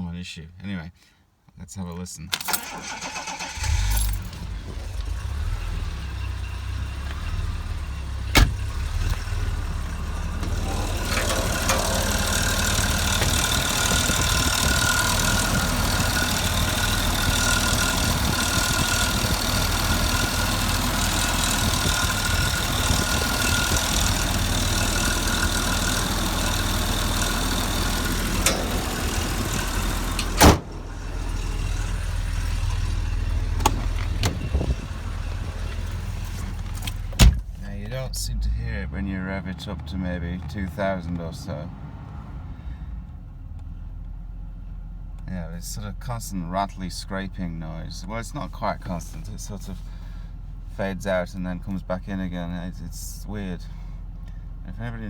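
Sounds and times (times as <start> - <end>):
car engine running: 2.5 - 55.0.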